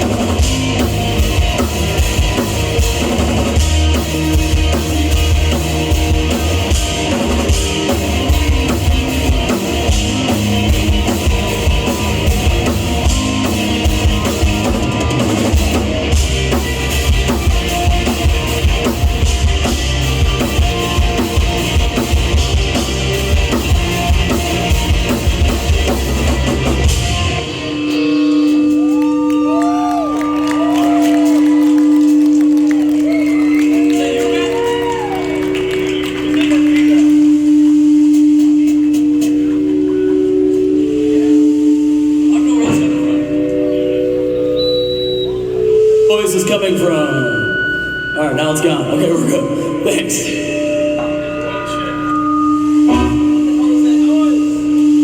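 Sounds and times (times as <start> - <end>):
live rock band playing: 0.0 - 55.0
crowd calling out: 28.4 - 37.3
steady held tone: 36.9 - 55.0.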